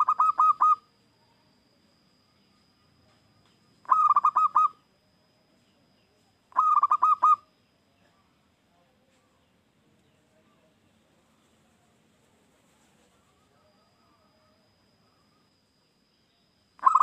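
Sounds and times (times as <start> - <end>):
dove cooing: 0.0 - 0.9, 3.8 - 4.8, 6.5 - 7.5, 16.8 - 17.0.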